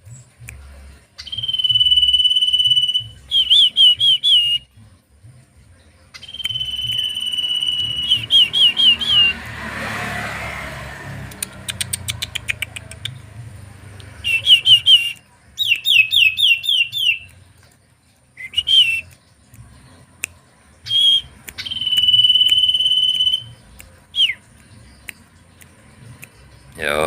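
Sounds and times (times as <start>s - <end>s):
songbird calling: 14.2s - 17.4s, 20.8s - 27.0s.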